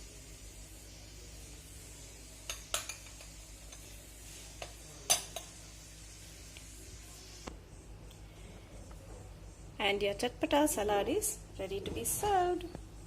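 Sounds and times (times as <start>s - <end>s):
spoon clinking on bowl: 2.5s - 3.9s, 4.6s - 5.5s.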